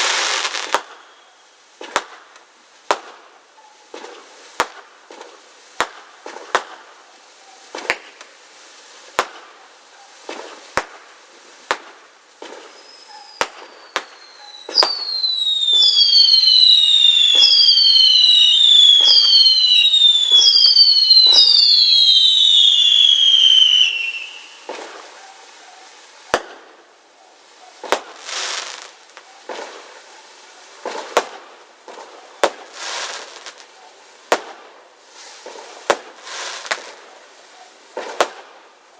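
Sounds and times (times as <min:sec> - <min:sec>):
firework bangs: 0:00.0 - 0:01.2, 0:01.8 - 0:07.0, 0:07.7 - 0:08.4, 0:09.0 - 0:37.2, 0:37.8 - 0:38.7
whistling fireworks: 0:00.0 - 0:02.3, 0:02.9 - 0:38.9
hissing firework bursts: 0:00.0 - 0:38.9.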